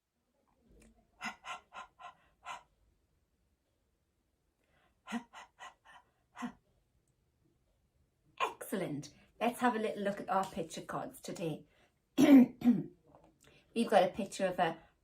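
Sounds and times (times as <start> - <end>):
person making breathy h sounds: 1.1 - 2.8, 5.0 - 6.6.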